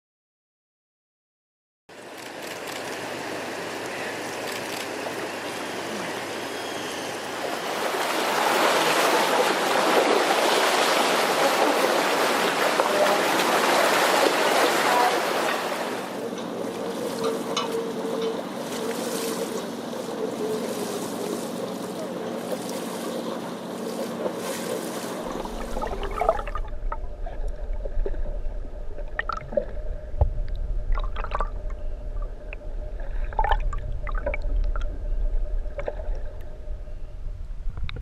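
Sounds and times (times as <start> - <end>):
boat engine hum: 1.9 - 38.0
water noise: 1.9 - 38.0
wind: 1.9 - 38.0
low rumble: 25.2 - 38.0.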